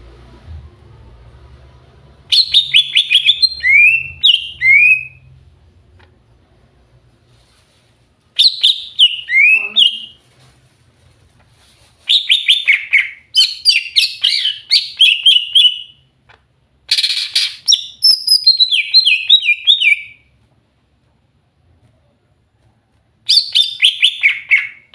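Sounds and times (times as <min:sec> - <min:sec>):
bird singing chirps and whistles: 0:02.3 - 0:05.2, 0:16.9 - 0:20.2, 0:23.3 - 0:24.8.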